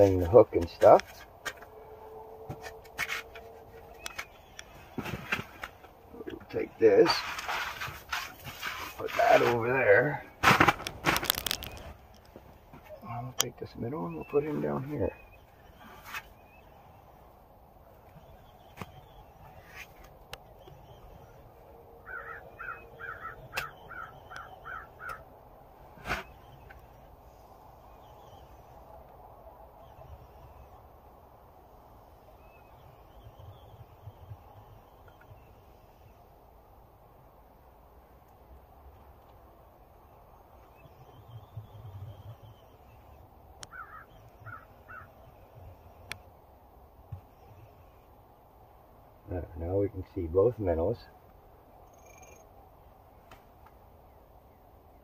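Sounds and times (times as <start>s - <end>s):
bird calling: 0.8s - 10.3s, 18.0s - 25.3s, 40.6s - 46.3s.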